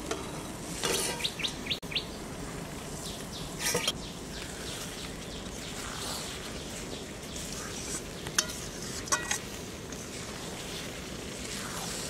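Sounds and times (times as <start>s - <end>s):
steady background hiss: 0.0s - 12.0s
small birds chirping: 1.1s - 9.0s.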